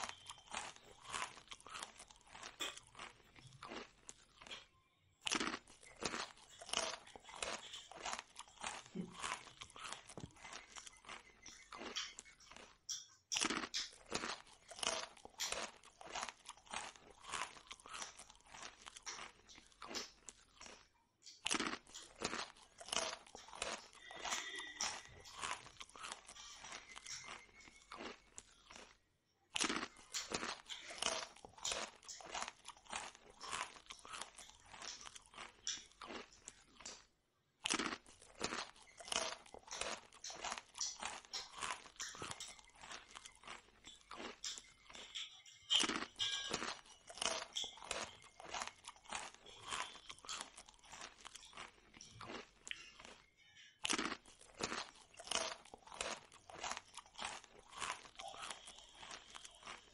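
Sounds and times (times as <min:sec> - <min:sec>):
crunchy chewing: 0:00.0 - 0:59.9.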